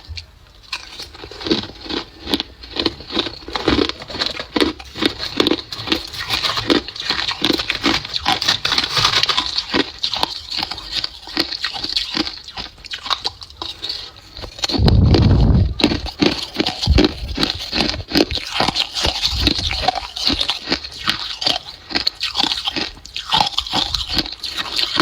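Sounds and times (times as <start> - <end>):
ice being chewed: 0.0 - 25.0
loud low rumble: 14.8 - 16.0.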